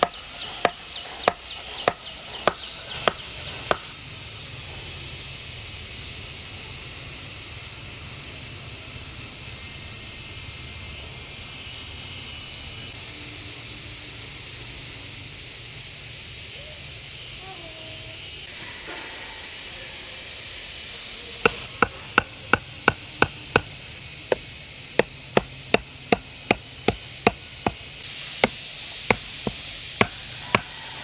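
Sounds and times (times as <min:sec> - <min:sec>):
sharp chopping strikes: 0:00.0 - 0:04.0, 0:21.5 - 0:31.0
high insect drone: 0:00.0 - 0:04.4, 0:11.5 - 0:31.0.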